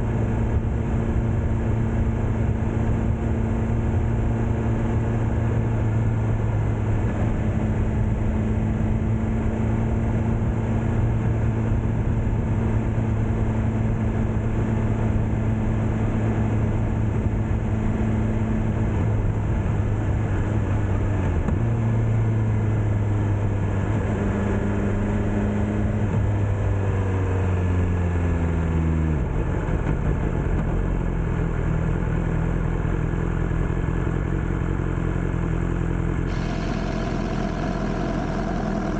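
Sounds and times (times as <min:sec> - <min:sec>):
motorcycle engine running: 0:00.0 - 0:26.6, 0:29.3 - 0:38.9
road and wind noise: 0:00.0 - 0:38.9.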